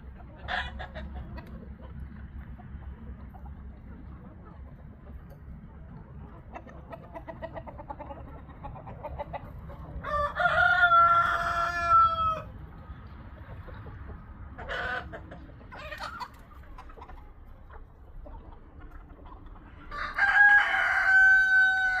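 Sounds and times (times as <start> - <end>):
hens clucking: 0.0 - 22.0
rooster crowing: 10.0 - 12.5, 19.9 - 22.0.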